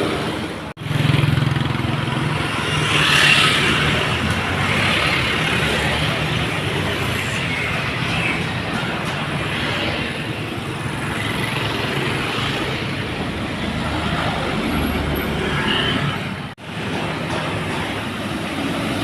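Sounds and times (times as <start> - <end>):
dump truck engines under load: 0.0 - 19.0
road noise: 0.0 - 19.0.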